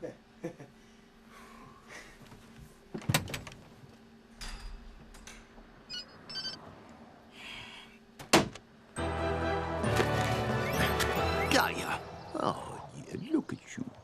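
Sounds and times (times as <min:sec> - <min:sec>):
short high electronic beeps: 0:05.9 - 0:06.6
background music: 0:09.0 - 0:12.9.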